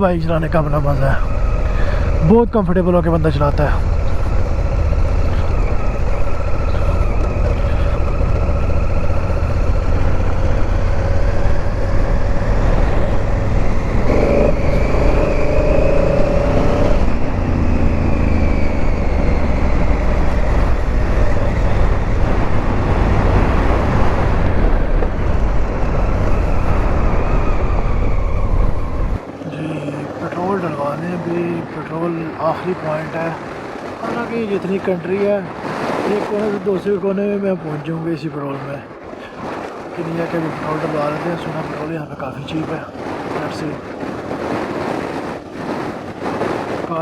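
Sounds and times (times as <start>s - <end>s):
motorcycle engine running: 0.0s - 30.0s
wind rumble on microphone: 0.0s - 47.0s.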